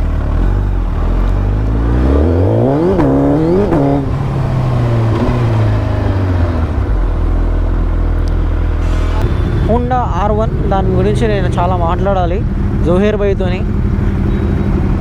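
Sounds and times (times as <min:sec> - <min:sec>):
motorbike engine accelerating: 0:00.0 - 0:15.0.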